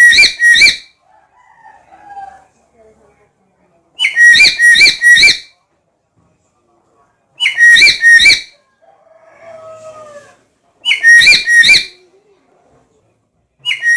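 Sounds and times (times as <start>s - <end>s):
parrot shrill calls: 0.0s - 0.9s, 4.0s - 5.5s, 7.4s - 8.6s, 10.9s - 12.0s, 13.7s - 13.9s.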